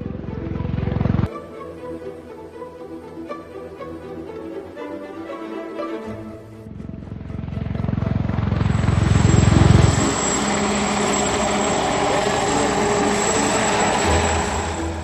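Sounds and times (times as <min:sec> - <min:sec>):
helicopter rotor blades chopping: 0:00.0 - 0:01.3, 0:06.7 - 0:15.0
high engine whine: 0:00.0 - 0:01.4, 0:06.4 - 0:15.0.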